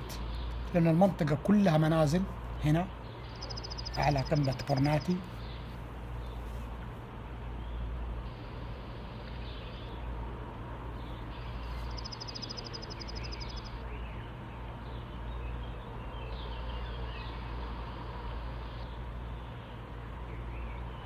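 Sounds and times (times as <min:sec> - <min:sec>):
birds chirping: 0:00.0 - 0:10.2, 0:10.9 - 0:17.7
rapid high bird trill: 0:03.1 - 0:05.7, 0:11.3 - 0:13.8.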